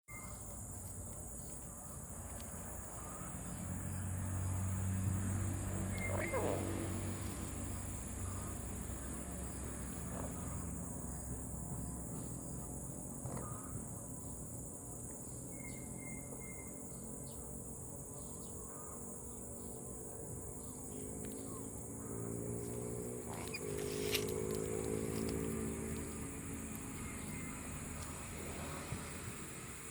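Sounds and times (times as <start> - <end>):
insects droning: 0.1 - 29.9
insect-like buzzing trill: 20.1 - 29.9.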